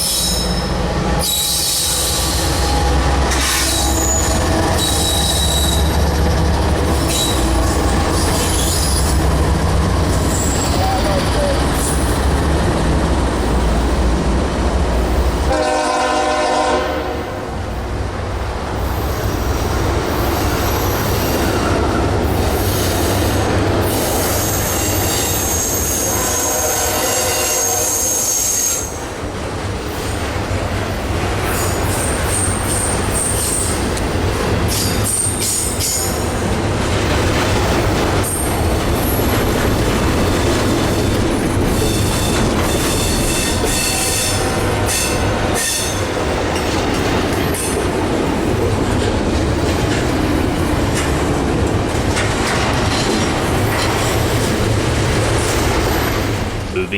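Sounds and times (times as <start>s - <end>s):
high wheel squeals: 0.0s - 6.1s, 7.0s - 9.4s, 10.1s - 12.2s, 24.2s - 26.6s
diesel freight train rumbling: 0.0s - 56.9s
locomotive horn blasts: 15.5s - 17.5s, 26.1s - 28.1s.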